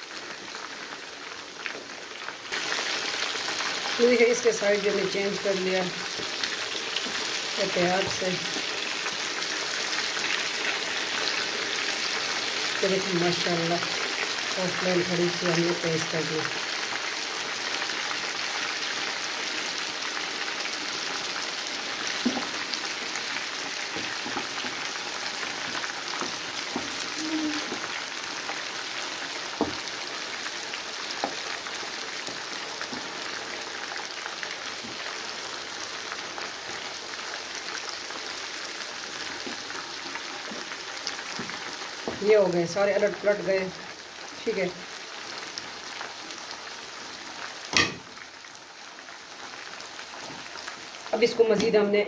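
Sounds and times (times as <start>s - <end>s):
chicken sizzling in oil: 0.0s - 52.0s
wooden spoon knocking on pan: 22.2s - 22.5s, 29.6s - 29.8s, 47.7s - 48.1s.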